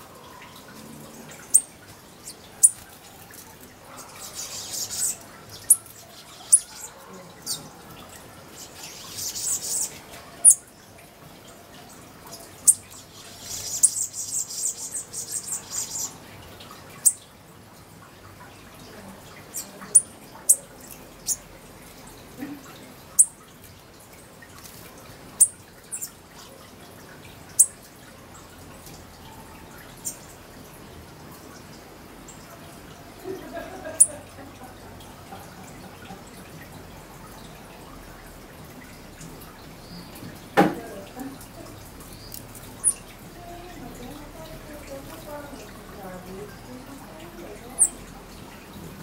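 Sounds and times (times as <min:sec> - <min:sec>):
small birds chip calls: 0:00.2 - 0:11.0, 0:11.8 - 0:16.3, 0:16.9 - 0:17.2, 0:18.9 - 0:23.5, 0:25.3 - 0:26.6, 0:27.5 - 0:30.4, 0:41.1 - 0:44.2, 0:44.8 - 0:48.1
rapid high bird twittering: 0:01.3 - 0:02.9, 0:03.9 - 0:10.6, 0:12.3 - 0:16.2, 0:17.0 - 0:17.2, 0:19.5 - 0:21.4, 0:23.1 - 0:23.4, 0:25.4 - 0:26.2, 0:27.5 - 0:27.8, 0:30.0 - 0:30.3, 0:42.0 - 0:43.2, 0:47.4 - 0:48.1.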